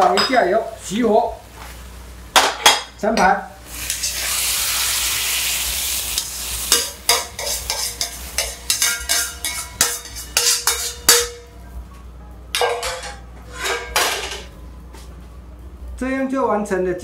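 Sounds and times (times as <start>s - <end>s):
food sizzling: 3.6s - 11.4s
metal ladle scraping a wok: 6.2s - 11.3s, 13.4s - 14.4s.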